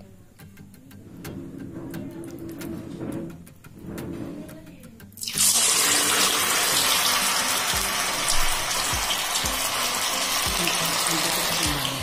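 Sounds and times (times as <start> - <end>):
batter sizzling in hot oil: 5.2 - 12.0.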